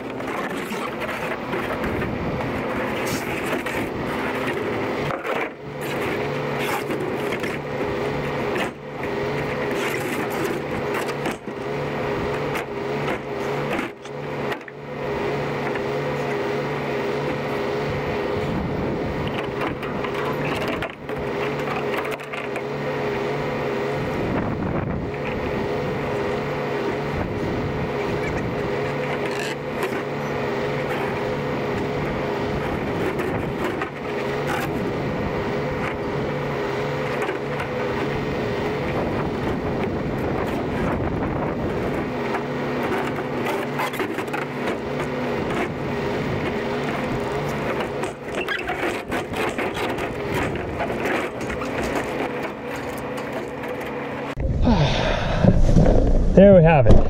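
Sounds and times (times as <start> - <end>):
short knocks and scrapes: 2.7 - 7.7.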